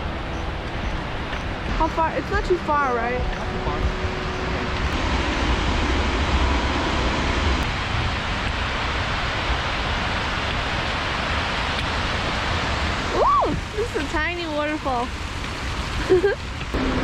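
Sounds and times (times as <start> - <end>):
small waterfall rushing: 0.0 - 17.0.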